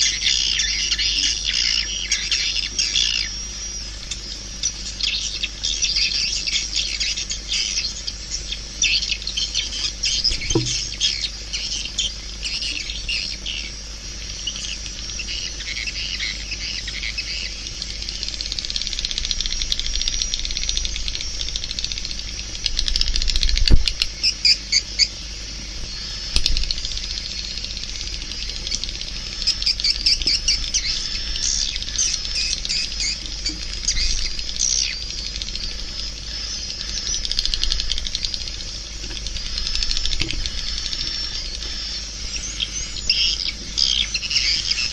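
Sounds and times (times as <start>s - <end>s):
birds twittering: 0.0s - 44.9s
rapid bird clicks: 17.6s - 24.2s, 26.3s - 41.9s.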